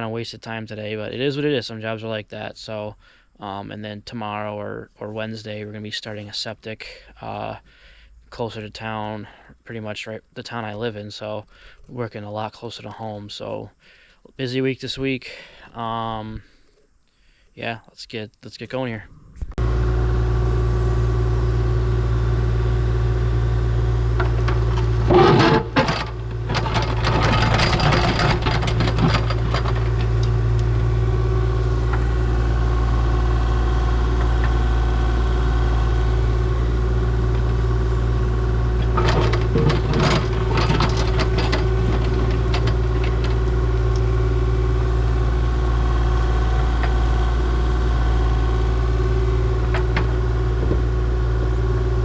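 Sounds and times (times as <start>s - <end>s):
excavator diesel engine: 19.6s - 52.0s
digging clatter and scraping: 24.0s - 32.7s, 36.2s - 47.5s, 49.1s - 50.9s.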